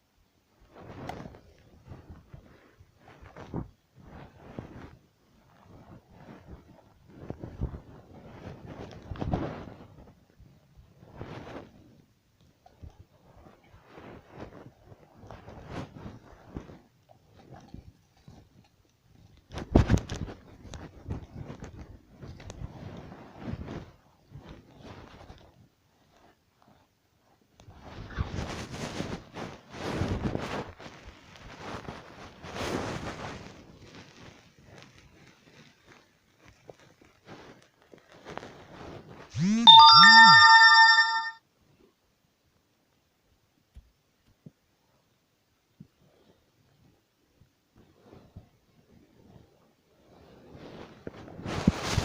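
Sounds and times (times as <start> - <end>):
electronic chime: 39.4 - 41.4.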